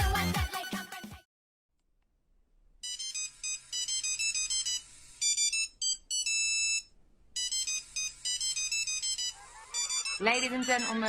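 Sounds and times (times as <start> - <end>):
phone ringtone melody: 2.8 - 11.0.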